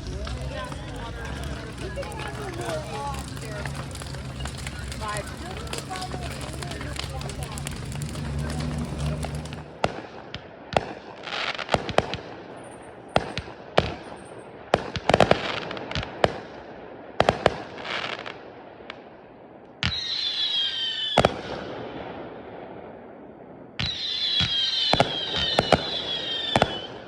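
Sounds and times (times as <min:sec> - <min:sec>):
whistling firework: 0:00.0 - 0:16.4, 0:19.8 - 0:27.0
fireworks bangs and pops: 0:00.0 - 0:19.1, 0:19.8 - 0:22.3, 0:23.8 - 0:27.0.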